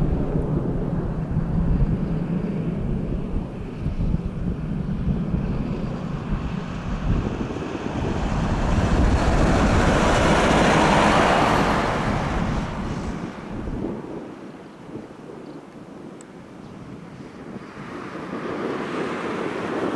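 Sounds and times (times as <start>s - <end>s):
low rumble: 0.0s - 14.0s
jet aircraft passing overhead: 0.0s - 15.4s, 16.8s - 19.9s
thin high jet whine: 2.1s - 14.1s.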